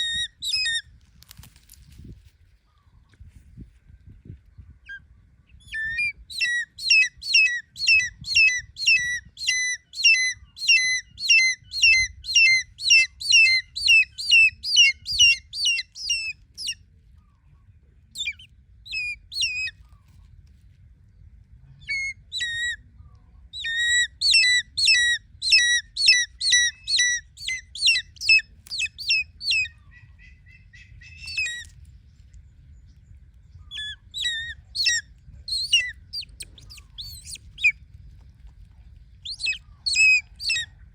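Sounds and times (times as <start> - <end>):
hawk-eagle shrill calls: 5.7 - 16.8, 23.6 - 31.7, 33.7 - 37.7, 39.2 - 40.8.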